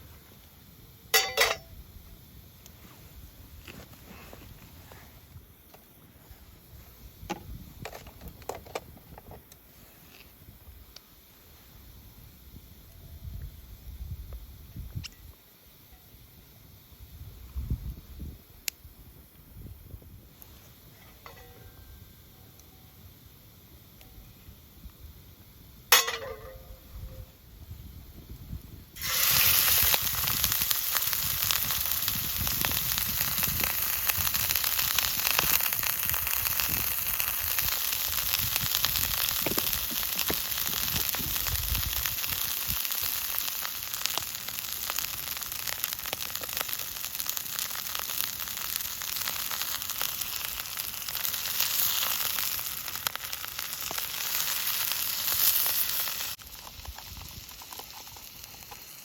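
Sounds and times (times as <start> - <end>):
food sizzling in a hot pan: 28.9 - 59.0.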